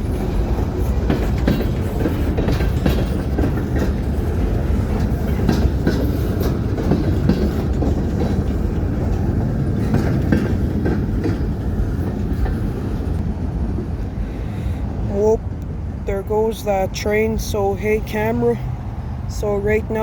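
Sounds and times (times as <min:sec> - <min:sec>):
train wheels clicking over rail joints: 0:00.0 - 0:15.8
freight train rumbling past: 0:00.0 - 0:20.0.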